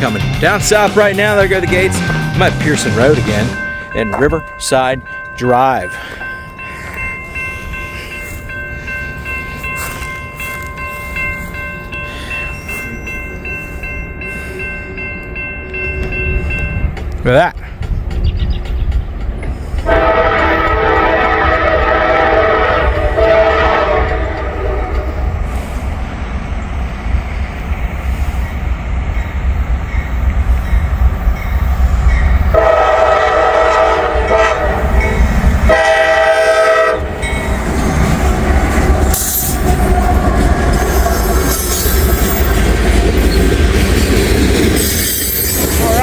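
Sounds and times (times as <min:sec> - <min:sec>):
low train rumble: 0:00.0 - 0:46.0
rail cars clattering: 0:00.0 - 0:46.0
locomotive horn blasts: 0:19.8 - 0:25.2, 0:32.5 - 0:37.3.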